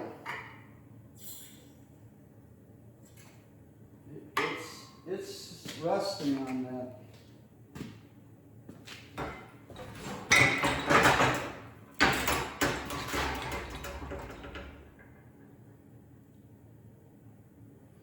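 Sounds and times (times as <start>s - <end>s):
metal clanking and scraping: 9.7s - 15.1s.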